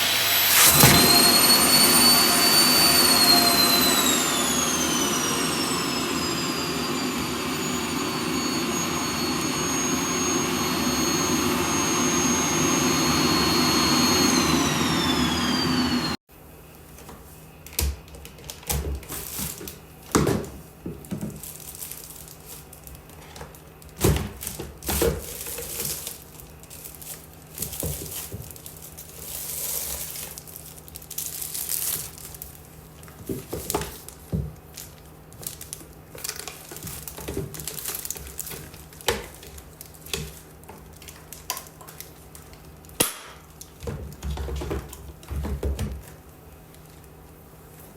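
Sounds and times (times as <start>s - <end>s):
vacuum cleaner running: 0.0s - 16.2s
plastic crinkling: 21.0s - 43.8s.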